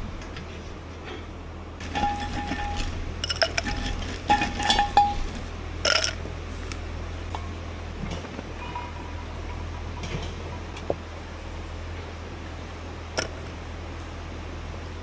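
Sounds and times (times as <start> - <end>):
tableware clinking: 1.8 - 6.2.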